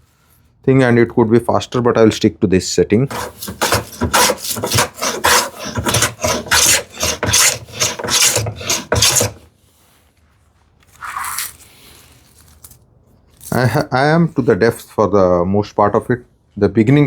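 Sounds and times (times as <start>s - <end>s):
plane shaving wood: 3.1s - 9.5s.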